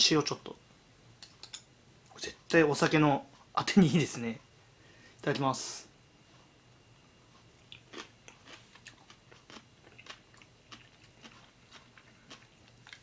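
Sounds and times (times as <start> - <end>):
person chewing cucumber: 7.4 - 13.0.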